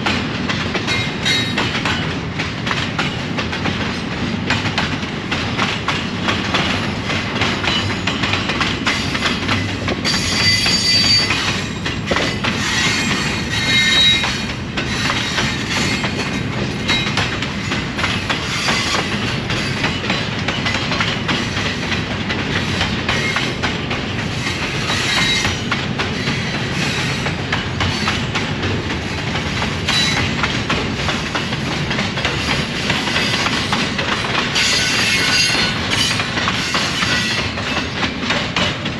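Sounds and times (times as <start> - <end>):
train wheels clicking over rails: 0.0 - 38.9
high-pitched wheel squeals: 10.1 - 11.5, 12.6 - 14.3.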